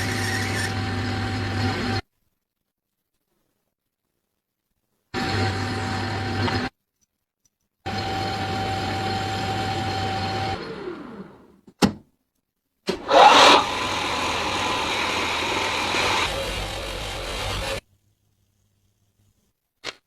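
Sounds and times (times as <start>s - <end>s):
power tool motor whining: 0.0s - 2.0s, 7.9s - 11.5s, 13.0s - 17.8s.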